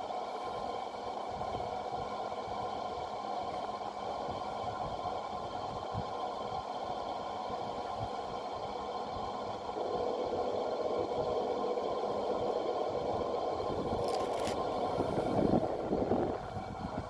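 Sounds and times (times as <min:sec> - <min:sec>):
industrial fan whirring: 0:00.6 - 0:17.0.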